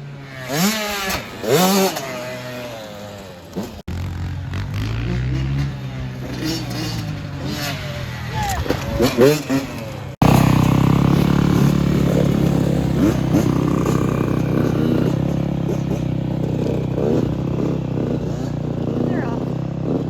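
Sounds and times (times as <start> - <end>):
dirt bike engine idling: 5.5 - 20.0.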